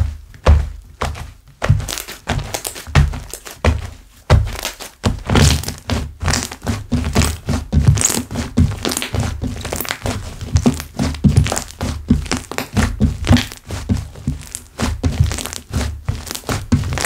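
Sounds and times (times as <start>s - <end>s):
slime squelching: 4.4s - 17.0s.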